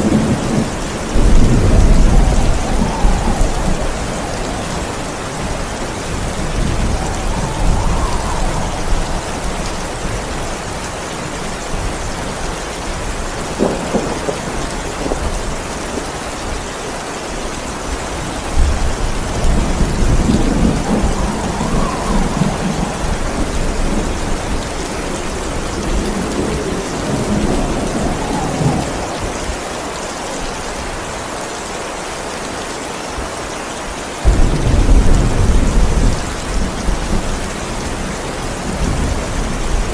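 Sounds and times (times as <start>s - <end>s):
thunder rolling: 0.0s - 12.0s, 13.4s - 15.5s, 18.5s - 30.0s, 34.2s - 37.6s
heavy rain: 0.0s - 39.9s.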